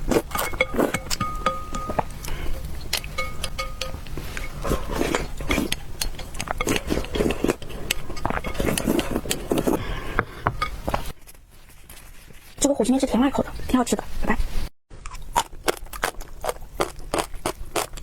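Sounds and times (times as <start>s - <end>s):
chewing and slurping: 2.2s - 9.8s, 15.1s - 18.0s.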